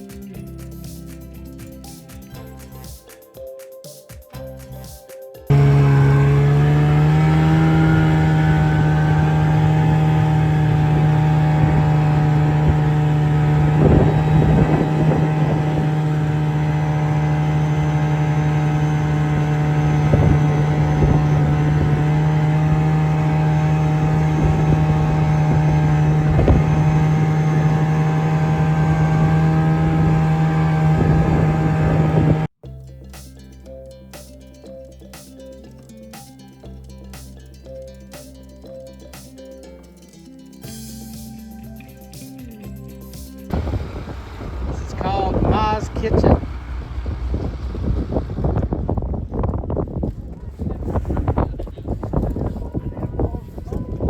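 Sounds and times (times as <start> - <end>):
snowmobile engine running: 5.5 - 32.5, 43.5 - 54.0.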